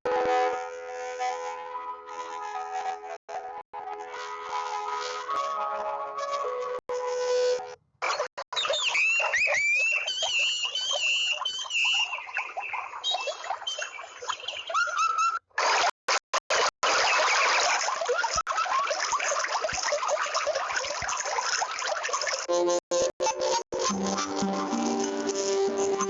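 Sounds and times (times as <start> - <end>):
many overlapping animal calls: 8.5 - 15.4, 17.0 - 22.5
wavering high animal call: 8.6 - 15.4.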